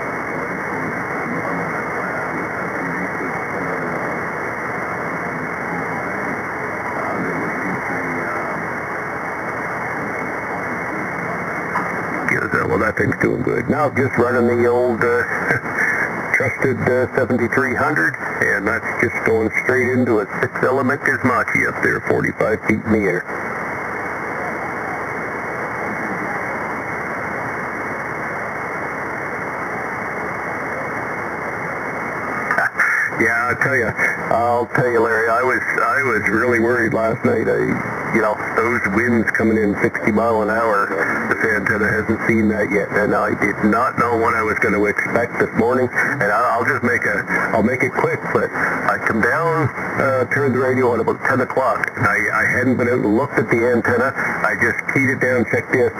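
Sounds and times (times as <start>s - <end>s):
radio static hiss: 0.0s - 55.9s
garbled radio voices: 10.9s - 23.3s, 32.2s - 55.9s.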